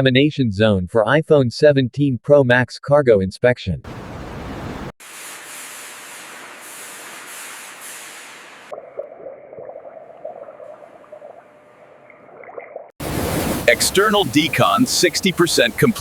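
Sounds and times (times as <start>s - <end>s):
water spray hissing: 5.0s - 8.8s, 13.0s - 16.0s
muffled uneven water sound: 8.7s - 16.0s.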